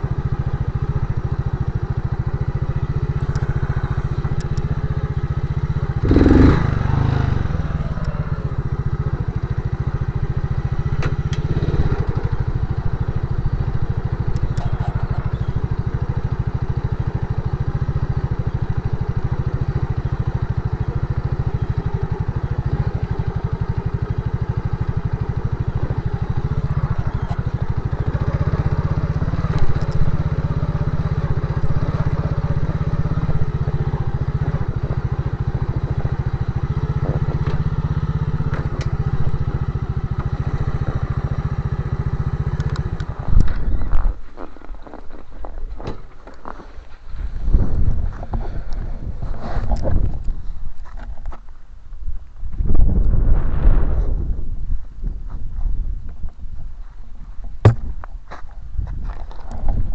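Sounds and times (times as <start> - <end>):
motorcycle engine running: 0.0 - 59.9
loud thump: 57.6 - 58.0.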